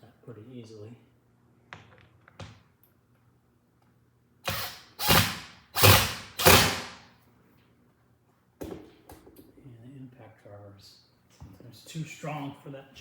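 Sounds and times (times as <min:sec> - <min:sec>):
cordless impact driver bursts: 0:04.4 - 0:07.0.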